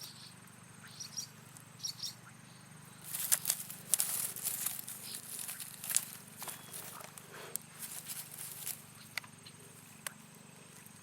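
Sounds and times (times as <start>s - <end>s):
faint bird chirps: 0.0s - 3.2s, 6.4s - 7.2s
footsteps crunching dry leaves: 3.0s - 9.1s.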